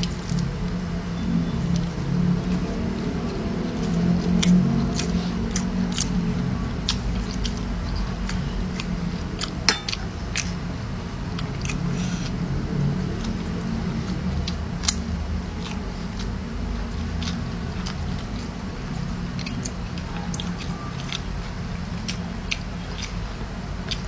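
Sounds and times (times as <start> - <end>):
steady low hum: 0.0 - 24.0
person chewing food: 1.8 - 24.0
wet mouth clicks and smacks: 14.5 - 21.3, 22.0 - 23.3.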